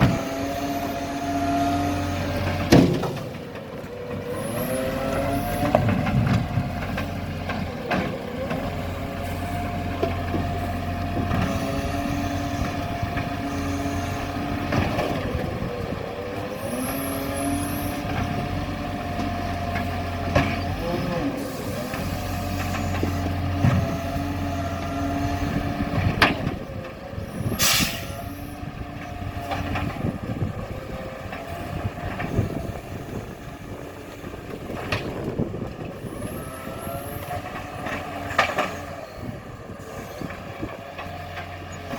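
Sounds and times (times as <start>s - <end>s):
garbage truck engine running: 0.0s - 41.9s
air hiss: 27.6s - 28.2s.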